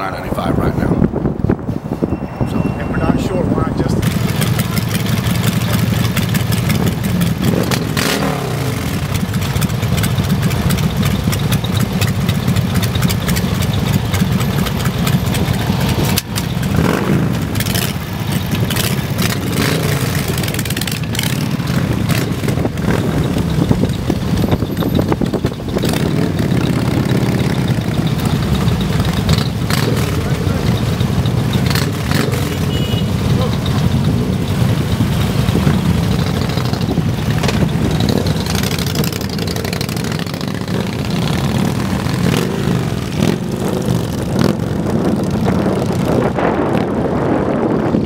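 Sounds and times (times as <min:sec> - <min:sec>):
motorcycle engines in traffic: 0:00.0 - 0:48.0
motorcycles passing by: 0:00.0 - 0:48.0.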